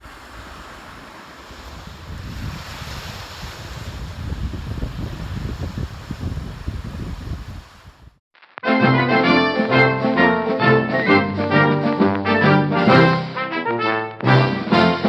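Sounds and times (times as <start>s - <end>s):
sea waves washing on shore: 0.0s - 8.2s
wind buffeting microphone: 0.0s - 8.2s.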